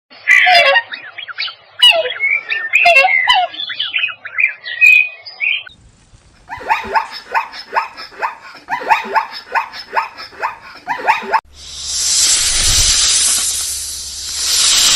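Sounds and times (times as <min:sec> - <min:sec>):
birds chirping: 0:00.1 - 0:11.4
rapid repeated animal call: 0:06.5 - 0:11.4.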